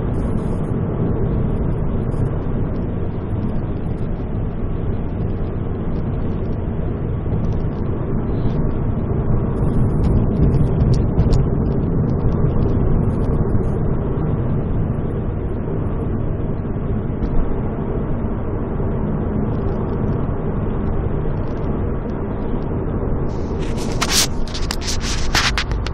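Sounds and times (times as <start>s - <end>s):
engine and exhaust drone: 0.0s - 25.9s
road noise: 0.0s - 25.9s
sharp scraping clicks: 23.3s - 25.9s.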